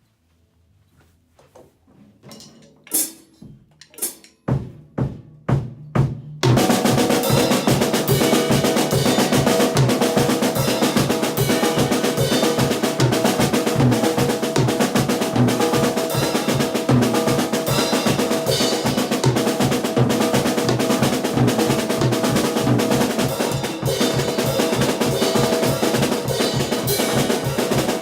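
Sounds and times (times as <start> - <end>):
drum hits: 3.0 - 28.0
band playing loud: 6.4 - 28.0.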